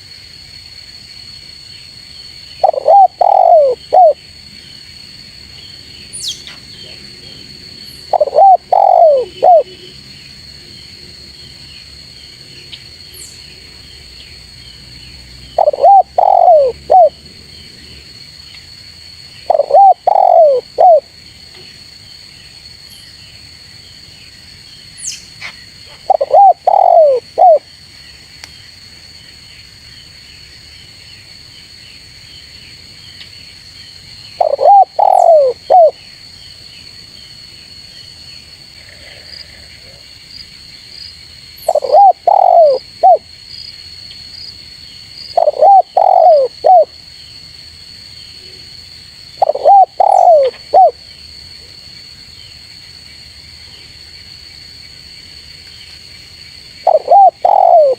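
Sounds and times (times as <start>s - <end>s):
insect chirring: 0.9s - 57.9s
dove cooing: 2.6s - 4.2s, 8.1s - 9.9s, 15.6s - 17.2s, 19.5s - 21.0s, 26.0s - 27.6s, 34.4s - 36.0s, 41.7s - 43.2s, 45.4s - 46.9s, 49.4s - 51.0s, 56.8s - 57.9s.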